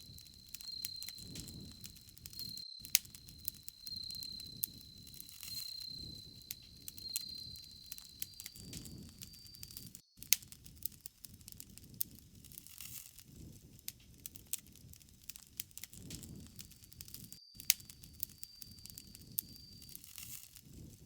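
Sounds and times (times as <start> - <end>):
high insect trill: 0.0 - 10.2, 17.1 - 20.5
low rush of flame: 0.0 - 12.6
bonfire crackling and popping: 0.0 - 21.0.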